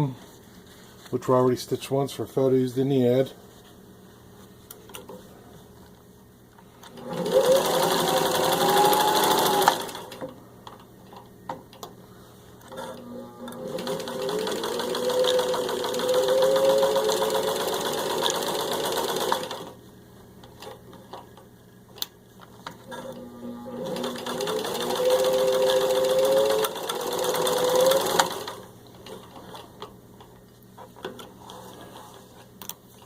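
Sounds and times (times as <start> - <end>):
sewing machine running: 6.9 - 10.2, 12.7 - 19.8, 22.9 - 28.7.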